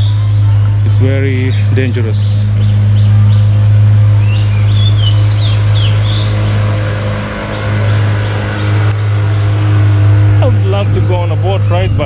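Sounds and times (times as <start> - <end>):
low mechanical hum: 0.0 - 12.0
birds chirping: 0.9 - 11.0.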